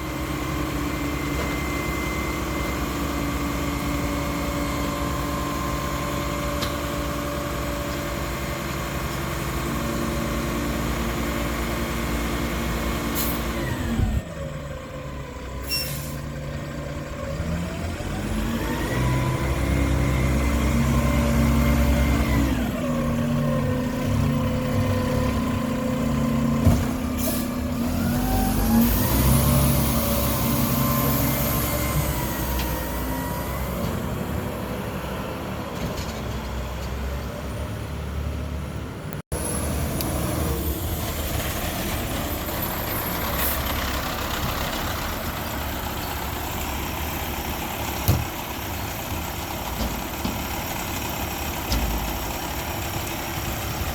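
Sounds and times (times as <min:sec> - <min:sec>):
garbage truck diesel engine revving: 0:00.0 - 0:15.6, 0:16.2 - 0:35.6, 0:39.3 - 0:53.9.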